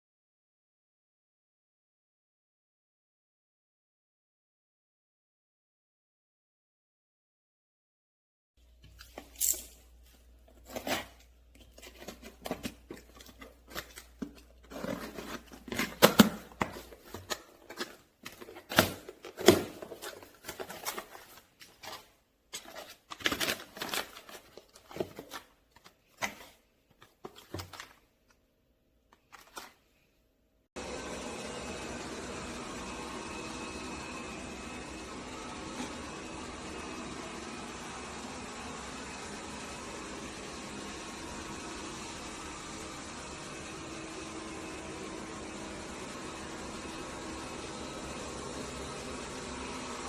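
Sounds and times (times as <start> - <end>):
packaging clicks and rustles: 8.8 - 28.4, 29.1 - 29.9
scraping or tearing: 10.6 - 28.1.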